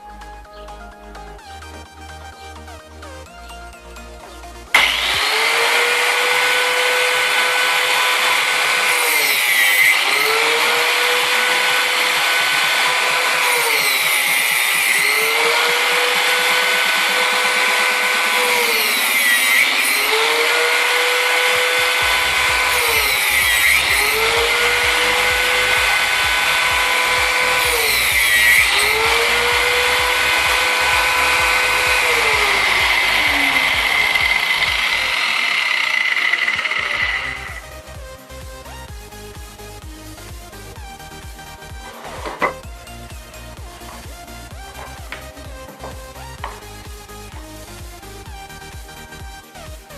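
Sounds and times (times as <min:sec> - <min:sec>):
background music: 0:00.0 - 0:49.9
angle grinder whining: 0:04.2 - 0:39.8, 0:40.5 - 0:49.7.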